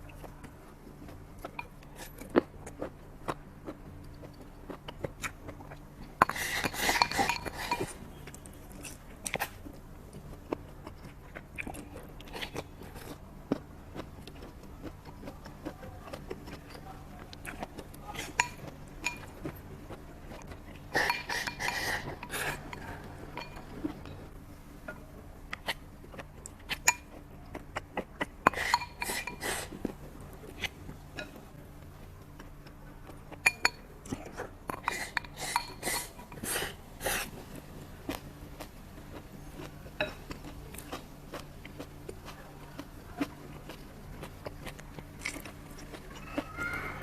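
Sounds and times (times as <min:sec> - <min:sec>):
steady low hum: 0:00.0 - 0:47.0
utensils clinking against dishes: 0:06.2 - 0:08.0, 0:18.2 - 0:19.3, 0:20.9 - 0:23.7, 0:28.4 - 0:29.6, 0:33.4 - 0:33.8, 0:34.7 - 0:36.5.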